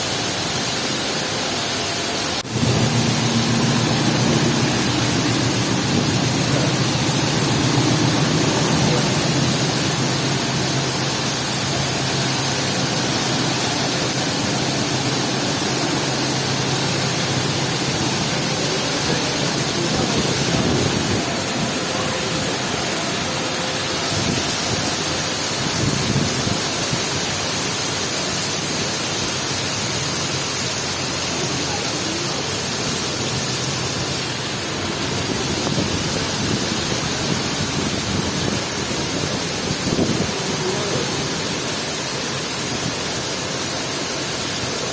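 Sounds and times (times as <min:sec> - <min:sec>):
heavy rain pouring: 0:00.0 - 0:44.9
low rumble: 0:02.4 - 0:22.2.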